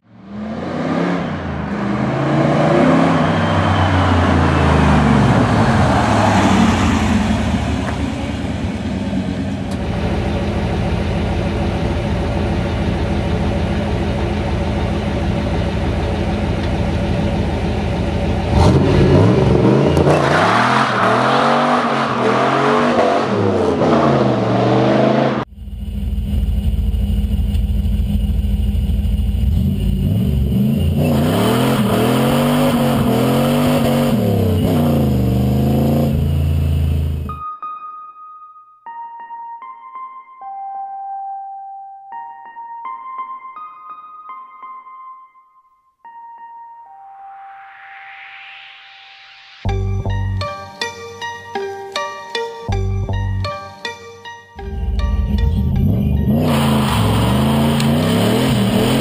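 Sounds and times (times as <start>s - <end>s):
car engine revving hard: 0.2s - 10.0s, 18.4s - 25.5s, 29.5s - 37.3s, 56.3s - 59.0s.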